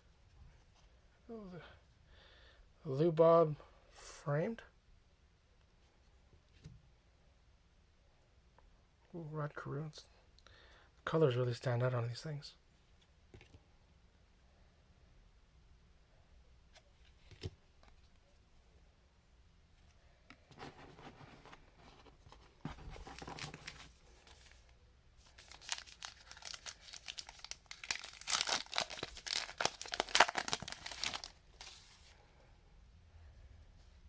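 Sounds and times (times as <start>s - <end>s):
plastic wrapper crinkling and tearing: 23.0s - 31.9s.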